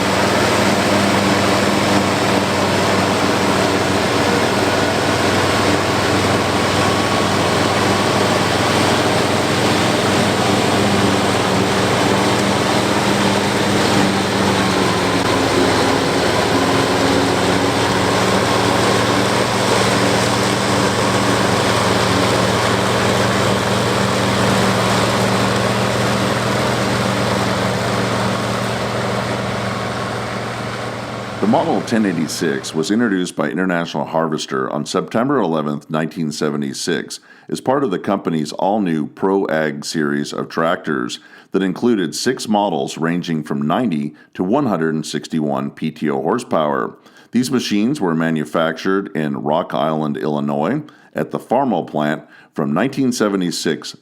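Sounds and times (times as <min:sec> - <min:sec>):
forage harvester chopping: 0:00.0 - 0:32.7
tractor diesel engine under load: 0:00.0 - 0:33.2.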